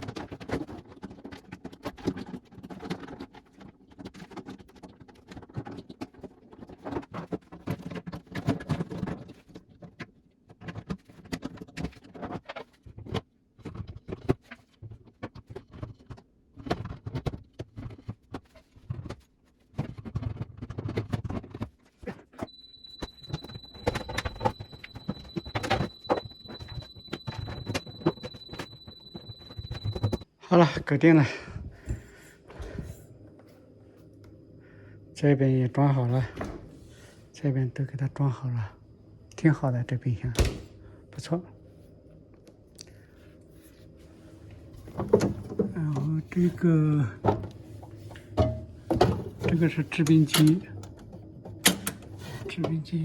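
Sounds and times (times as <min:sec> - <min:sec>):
refrigerator parts being handled: 0:00.0 - 0:30.2, 0:43.2 - 0:53.0
steady high-pitched tone: 0:22.4 - 0:30.2.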